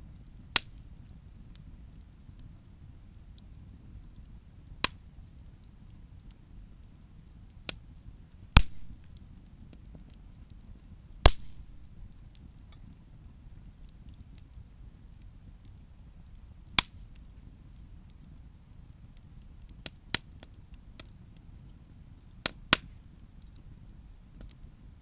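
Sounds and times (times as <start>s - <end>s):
bonfire crackling: 0.0s - 25.0s
burning wood popping: 0.0s - 25.0s
low steady rumble: 0.0s - 25.0s.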